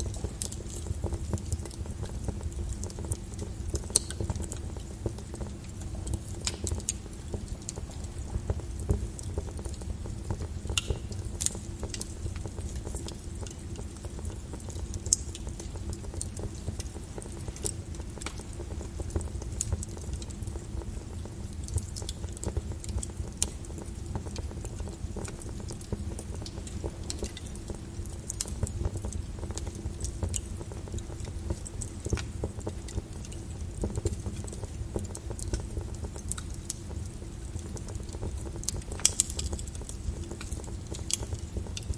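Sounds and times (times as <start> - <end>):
rain falling: 0.0 - 41.9
wood fire crackling: 0.0 - 41.9.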